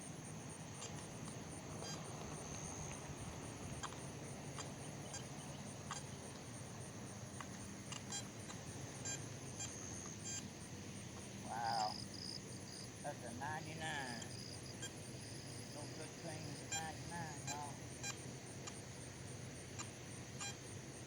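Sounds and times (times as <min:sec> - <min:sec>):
insects chirring: 0:00.0 - 0:21.0
sharp ticks: 0:07.4 - 0:10.2, 0:16.7 - 0:18.9.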